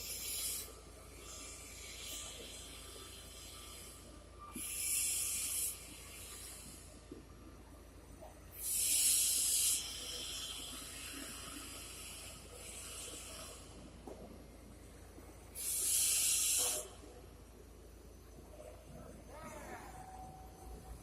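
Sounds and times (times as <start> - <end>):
steady low hum: 0.0 - 21.0
loud hissing bursts: 15.6 - 16.9.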